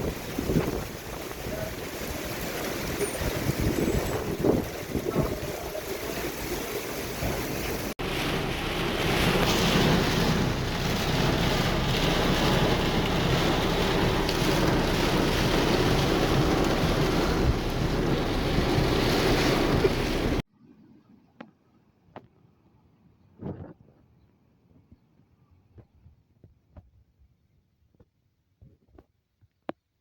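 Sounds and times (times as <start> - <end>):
heavy rain pouring: 0.0 - 20.4
wind buffeting microphone: 0.0 - 20.4
low rumble: 7.4 - 20.4.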